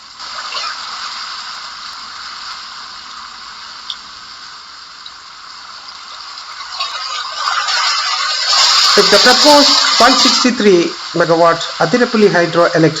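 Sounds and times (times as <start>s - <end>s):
rushing river water: 6.7s - 12.0s.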